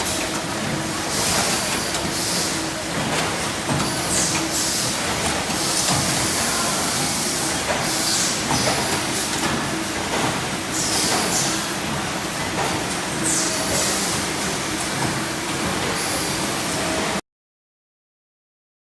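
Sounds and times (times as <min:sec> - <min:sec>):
machine clicks: 0:00.0 - 0:06.4
tube bending machine running: 0:00.0 - 0:17.0.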